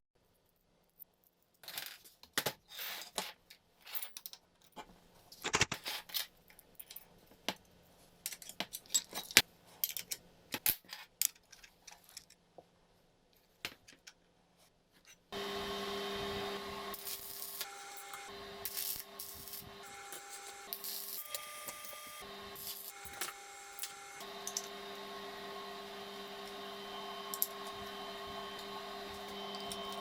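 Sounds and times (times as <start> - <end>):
small metal parts clicking: 8.2 - 12.4
small electric motor whirring: 15.3 - 30.0.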